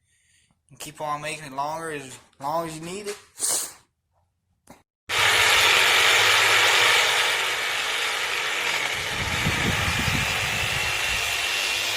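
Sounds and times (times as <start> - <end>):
reciprocating saw running: 5.1 - 11.9.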